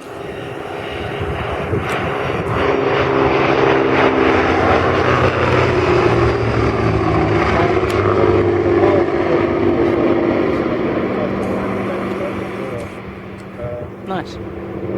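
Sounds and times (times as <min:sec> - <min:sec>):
propeller aircraft flying past: 0:00.0 - 0:14.9.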